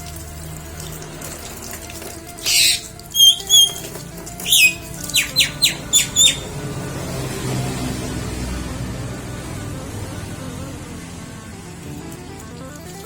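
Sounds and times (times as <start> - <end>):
bird calling and whistling: 2.4 - 6.6.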